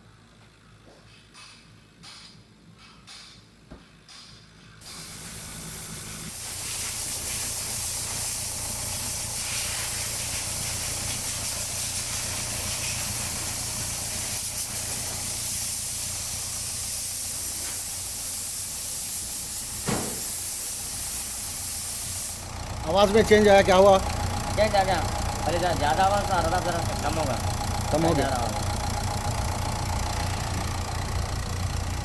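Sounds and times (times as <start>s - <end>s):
loud steady hiss: 4.8s - 28.4s
engine humming: 5.1s - 32.0s
short knock: 19.8s - 20.2s.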